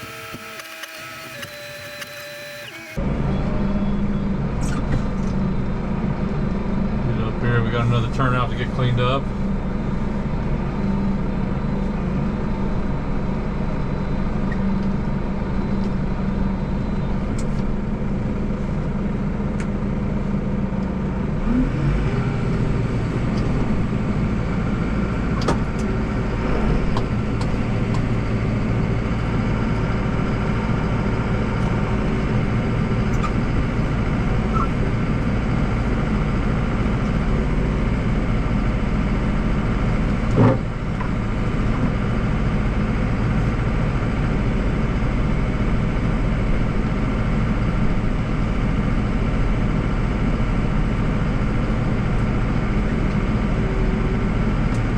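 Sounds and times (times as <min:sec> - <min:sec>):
snowblower augers in snow: 0:00.0 - 0:03.1, 0:20.2 - 0:54.9
tractor diesel engine running: 0:00.0 - 0:54.9.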